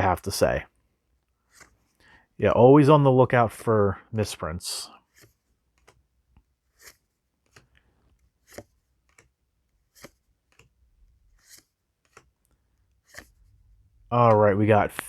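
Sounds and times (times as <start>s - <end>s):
trading cards snapping and rustling: 6.7s - 10.8s, 11.4s - 12.4s, 13.0s - 13.4s.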